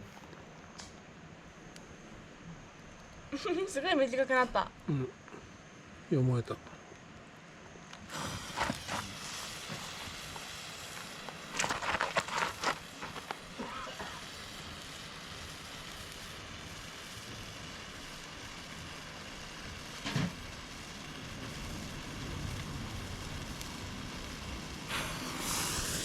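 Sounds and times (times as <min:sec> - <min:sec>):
handheld fireworks hissing: 0:07.8 - 0:26.0.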